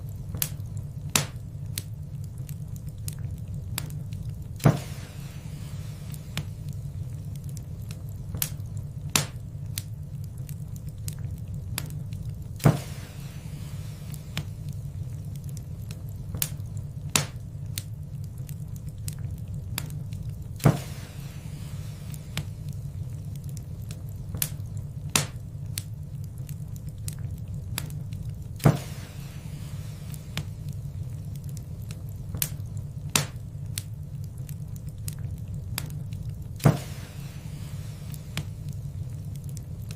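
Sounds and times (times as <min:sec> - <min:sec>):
fire popping and snapping: 0:00.0 - 0:39.9
wood fire crackling: 0:00.0 - 0:39.9.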